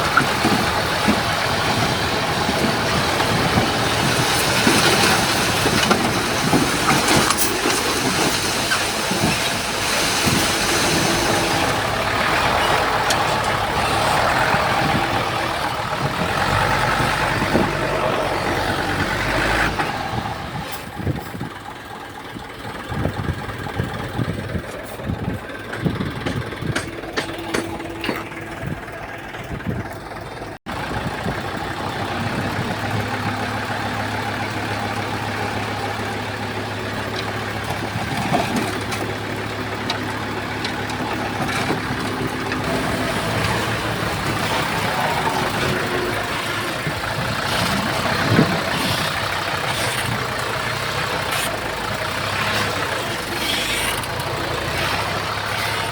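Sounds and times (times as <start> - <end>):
bulldozer diesel engine: 0.0 - 55.9
metal clanks: 24.6 - 30.0.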